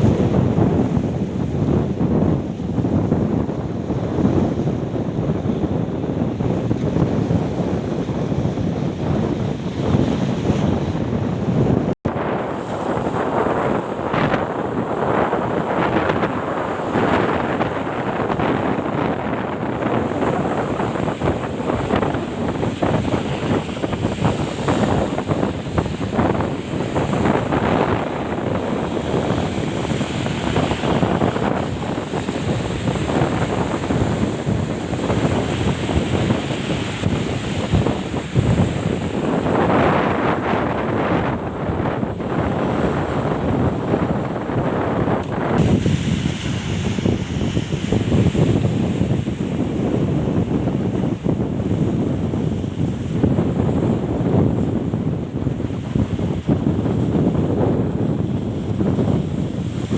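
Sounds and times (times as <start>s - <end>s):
wind buffeting microphone: 0.0s - 59.9s
waves breaking on rocks: 12.1s - 50.0s.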